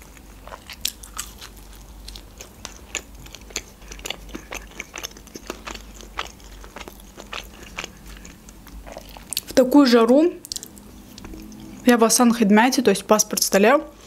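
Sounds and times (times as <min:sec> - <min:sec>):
person chewing food: 0:00.0 - 0:09.6, 0:10.4 - 0:11.8.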